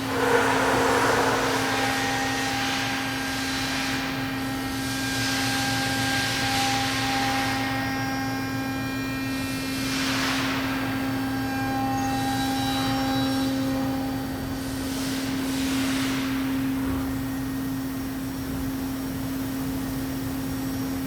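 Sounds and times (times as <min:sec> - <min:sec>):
rushing noise: 0:00.0 - 0:02.9
machine humming: 0:00.0 - 0:09.3.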